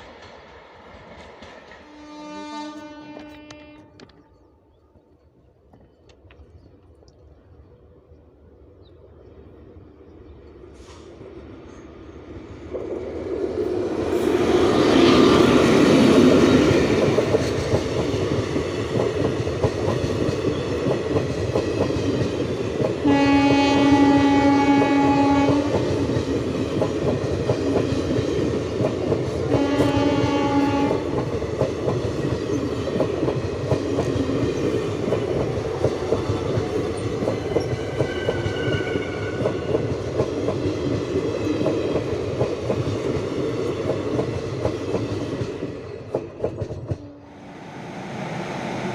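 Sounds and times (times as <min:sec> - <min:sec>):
train wheels clattering on rails: 0:00.0 - 0:02.2, 0:12.7 - 0:47.1
train horn blasts: 0:01.8 - 0:04.4, 0:23.0 - 0:25.9, 0:29.5 - 0:31.3, 0:37.8 - 0:39.8.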